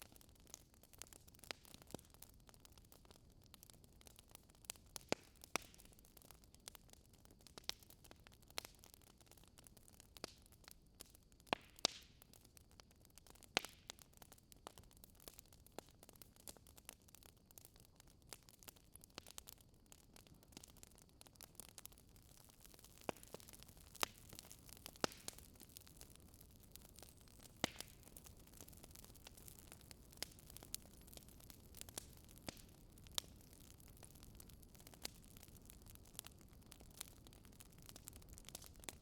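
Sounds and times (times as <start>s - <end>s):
wood fire crackling: 0.0s - 39.0s
faint steady hiss: 13.4s - 39.0s.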